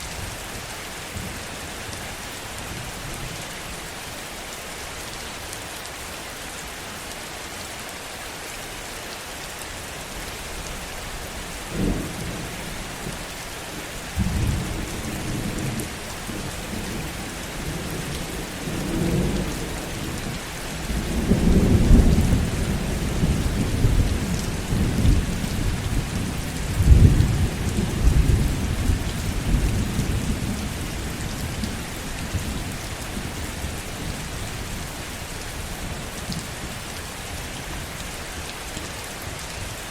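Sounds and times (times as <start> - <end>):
heavy rain falling: 0.0 - 39.9
thunder rumbling: 14.2 - 34.2.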